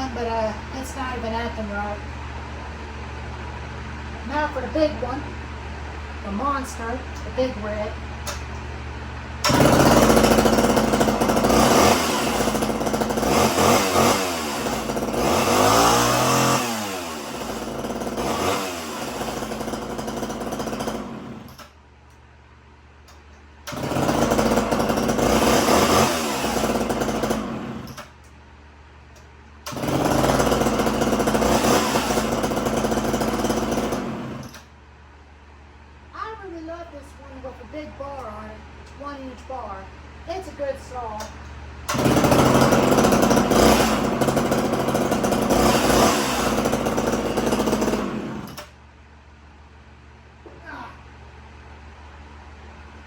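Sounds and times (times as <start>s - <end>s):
chainsaw revving: 9.4s - 21.6s, 23.7s - 28.1s, 29.7s - 34.7s, 41.9s - 48.8s.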